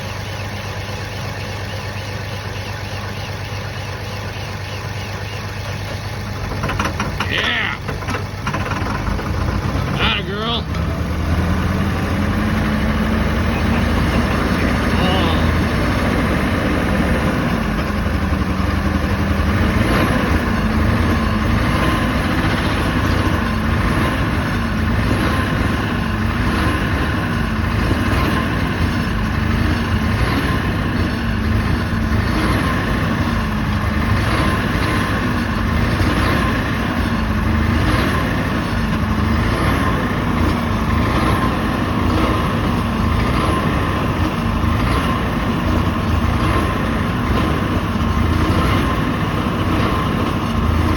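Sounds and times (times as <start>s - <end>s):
diesel generator humming: 0.0s - 50.9s.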